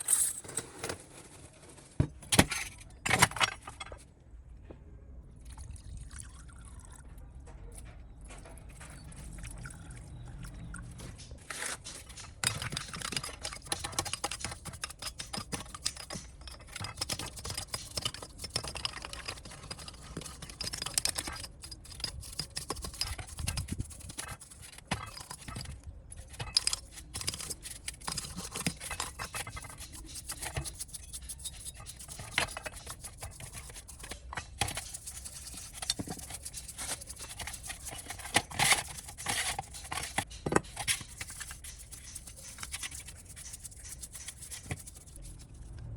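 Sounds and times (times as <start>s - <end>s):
hand tools scraping and brushing: 11.0s - 45.7s.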